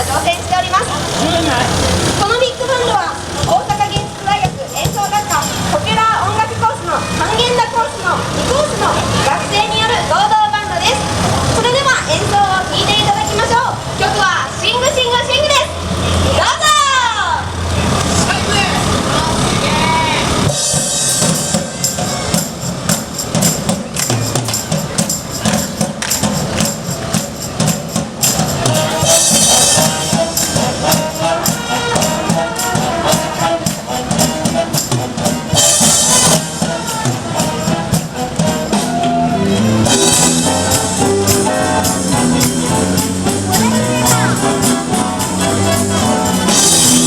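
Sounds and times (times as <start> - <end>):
big band playing: 0.0 - 47.0
horn lines: 0.0 - 47.0
drum kit beat: 3.2 - 6.2, 20.4 - 47.0
bright cymbal crashes: 20.5 - 24.3.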